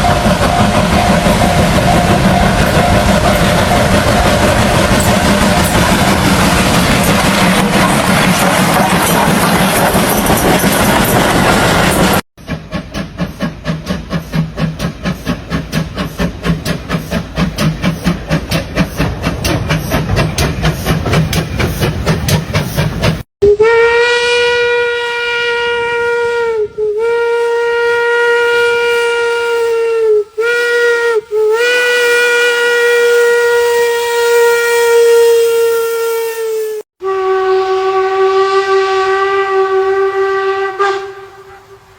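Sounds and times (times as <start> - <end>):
locomotive chuffing: 0.0 - 23.3
steam hiss: 11.6 - 23.2
steam whistle blowing: 23.4 - 41.9.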